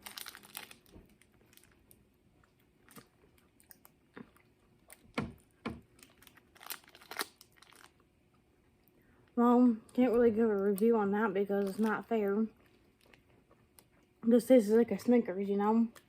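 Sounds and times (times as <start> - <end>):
person chewing candy bar: 0.0 - 8.1, 11.6 - 14.2.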